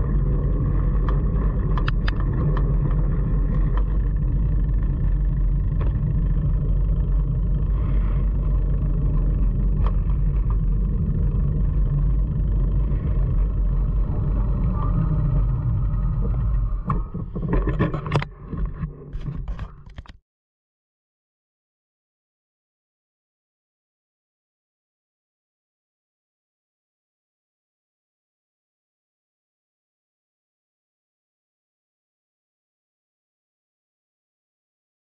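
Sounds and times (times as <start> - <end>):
wind buffeting microphone: 7.8 - 17.9.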